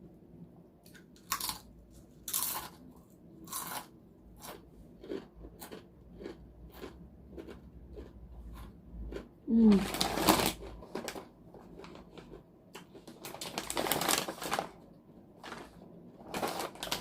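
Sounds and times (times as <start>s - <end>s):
chips crunching while chewed: 0.9s - 14.5s.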